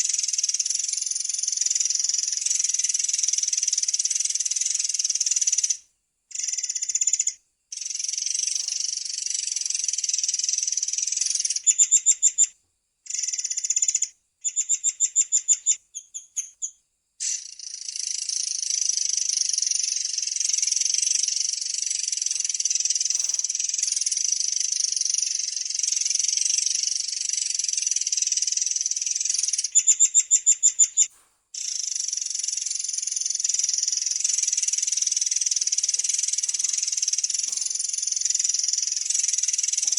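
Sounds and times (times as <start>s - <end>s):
songbird trilling: 13.1s - 39.9s
bird singing trilling rolls: 27.2s - 39.9s.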